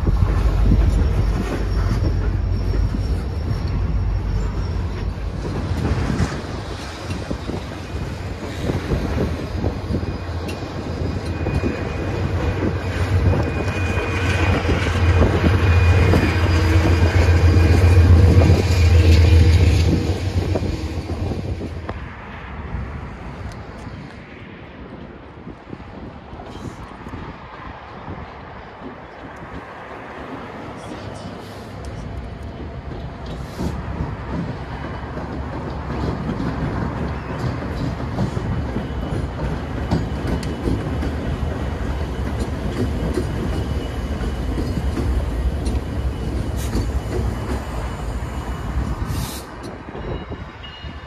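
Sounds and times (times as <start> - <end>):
diesel locomotive engine hum: 0.0 - 51.0
train wheels rumbling: 0.0 - 51.0
wheels clicking over rail joints: 31.7 - 48.0.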